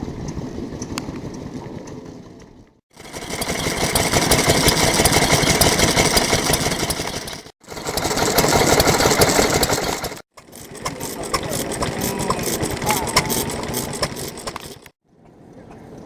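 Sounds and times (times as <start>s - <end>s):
stationary engine chugging: 2.9s - 15.0s.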